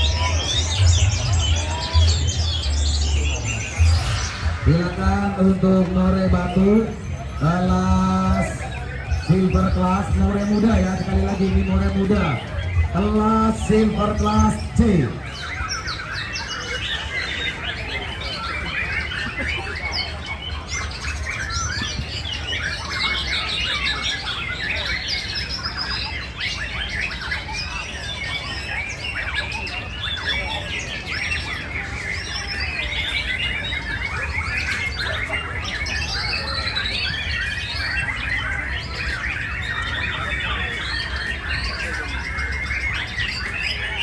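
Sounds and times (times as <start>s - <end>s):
chorus of birds singing: 0.0s - 44.0s
steady low rumble: 0.8s - 15.2s.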